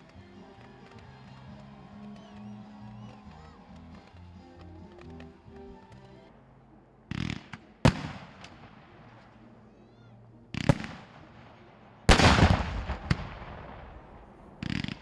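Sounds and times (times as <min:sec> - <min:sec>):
fireworks bangs: 0:07.1 - 0:09.2, 0:12.1 - 0:15.0.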